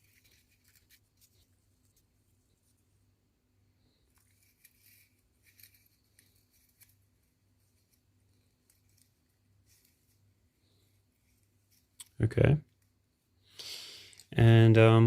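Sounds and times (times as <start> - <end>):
light clicks and scrapes: 0.0 - 2.8, 3.9 - 12.9.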